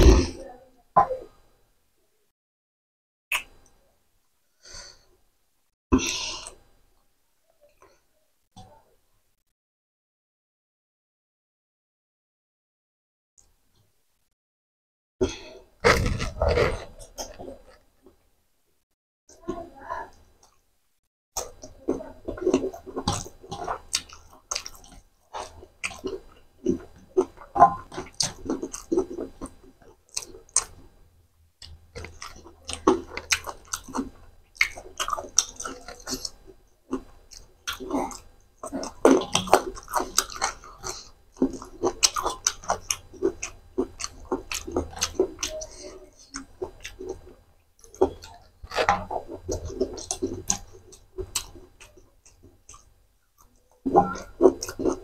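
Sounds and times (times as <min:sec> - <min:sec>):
wet mouth clicks: 0:03.3 - 0:03.8, 0:31.6 - 0:55.0
chewing and crunching food: 0:15.2 - 0:18.2, 0:21.4 - 0:31.0, 0:31.6 - 0:55.0.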